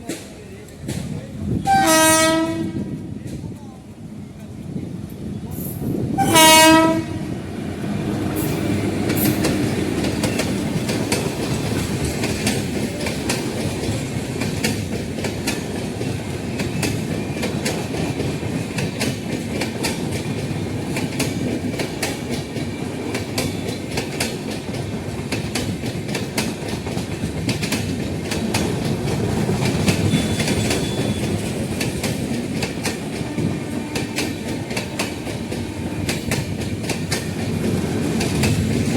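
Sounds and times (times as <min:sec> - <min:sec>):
train coaches rumbling by: 0:00.0 - 0:38.9
train horn blast: 0:01.6 - 0:03.0, 0:06.2 - 0:07.4, 0:30.0 - 0:31.4, 0:33.2 - 0:36.3
wheels clicking over rail joints: 0:08.4 - 0:38.9.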